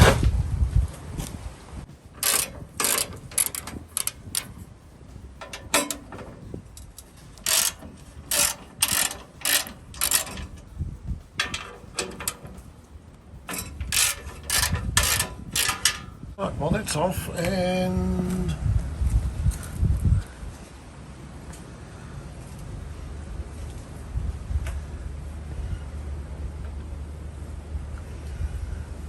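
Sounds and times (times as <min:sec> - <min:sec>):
hand tools clicking and scraping metal: 0:02.0 - 0:17.6.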